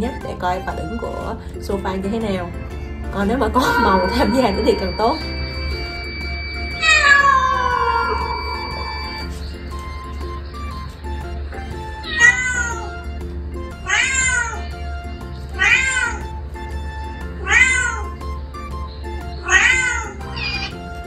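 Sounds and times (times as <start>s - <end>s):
background music: 0.0s - 21.0s
cat meows through laptop speaker: 6.8s - 9.3s, 12.0s - 12.9s, 13.9s - 14.7s, 15.6s - 16.2s, 17.4s - 18.2s, 19.4s - 20.8s.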